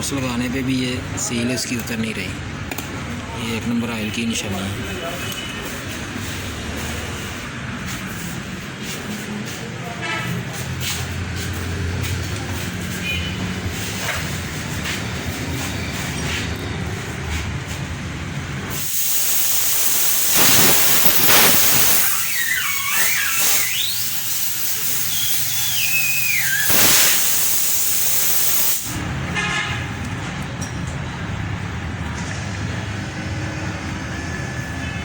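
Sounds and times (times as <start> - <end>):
loud hiss: 18.6 - 29.0
short whistling glides: 21.3 - 24.0, 25.0 - 27.3.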